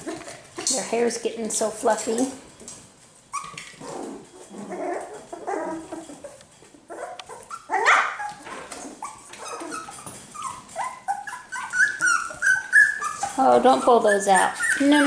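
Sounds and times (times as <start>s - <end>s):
puppies yipping and whimpering: 3.3s - 15.0s
puppy rising yelp: 6.9s - 15.0s.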